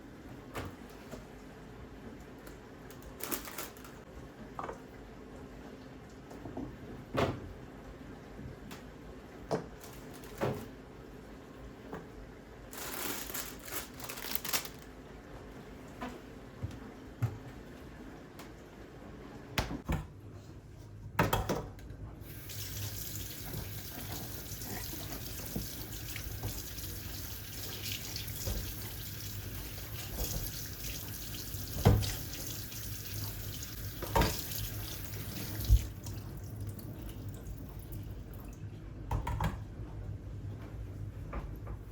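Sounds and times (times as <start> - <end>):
tap running into sink: 25.0 - 36.1.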